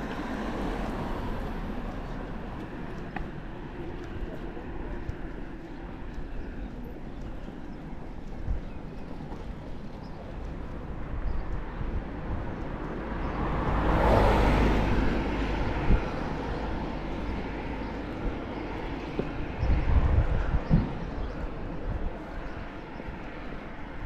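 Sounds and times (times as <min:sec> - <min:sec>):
vehicle passing by: 0:12.8 - 0:20.2.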